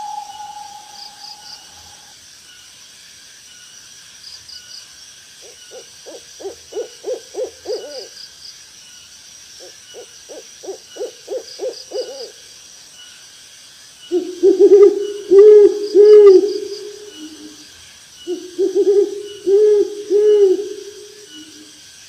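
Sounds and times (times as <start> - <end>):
owl hooting: 0.0 - 2.1, 5.7 - 8.1, 9.6 - 12.4, 14.1 - 17.6, 18.2 - 21.7
insects trilling: 0.0 - 22.0.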